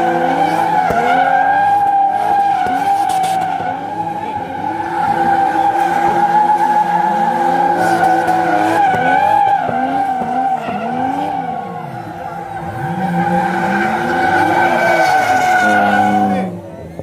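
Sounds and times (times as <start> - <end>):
tyres squealing: 0.0 - 16.6
car engines revving: 0.0 - 17.0.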